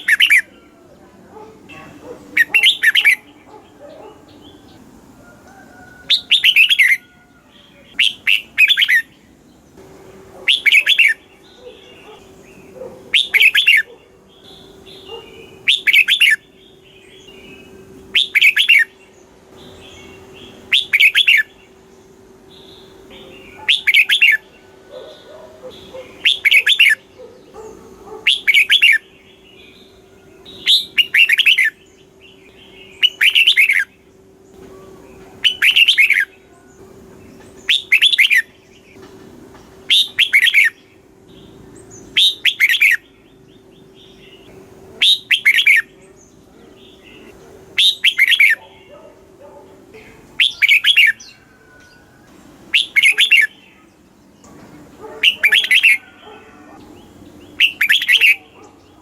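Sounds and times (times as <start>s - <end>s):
softer bird calls: 0.0s - 9.3s, 10.4s - 59.0s
bulbul singing: 0.0s - 59.0s
faint steady hum: 0.0s - 59.0s.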